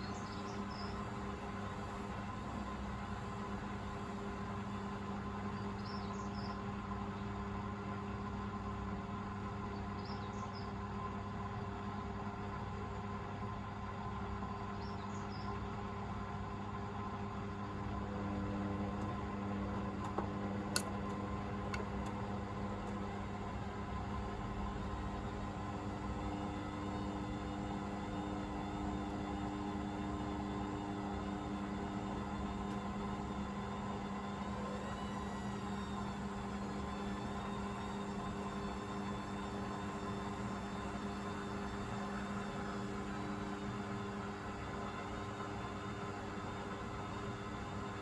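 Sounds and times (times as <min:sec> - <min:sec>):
washing machine humming: 0:00.0 - 0:48.0.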